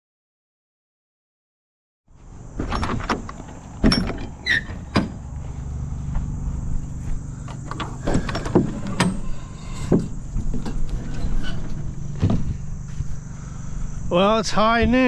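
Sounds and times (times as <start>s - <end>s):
engine idling: 3.2s - 14.5s.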